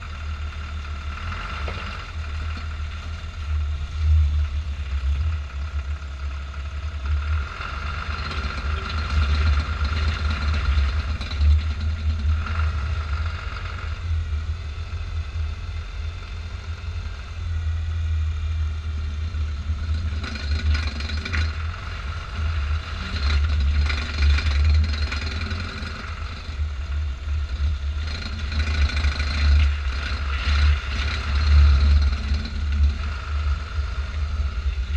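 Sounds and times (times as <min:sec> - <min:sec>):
engine humming: 0:00.0 - 0:34.9
vehicle ratcheting clicks: 0:28.0 - 0:33.2.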